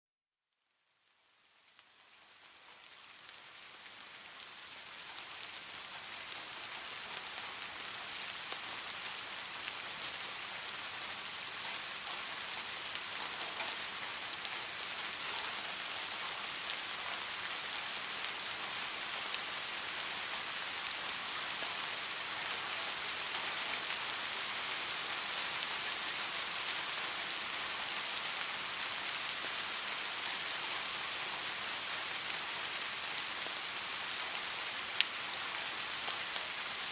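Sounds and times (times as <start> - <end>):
steady rain falling: 0.6 - 36.9.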